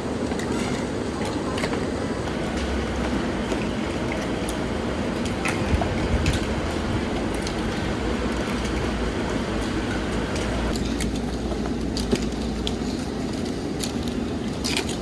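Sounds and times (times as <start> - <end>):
engine rumble: 1.0 - 15.0.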